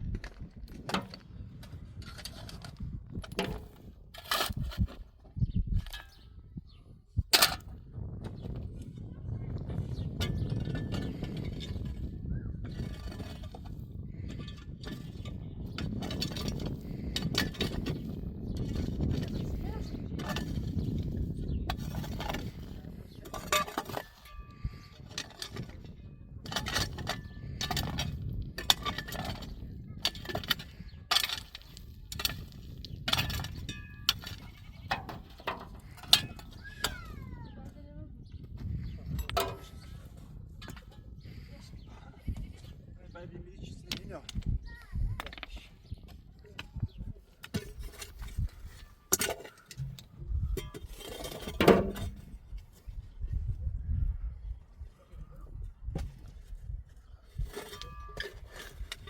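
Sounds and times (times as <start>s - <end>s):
objects rattling: 9.8s - 37.4s.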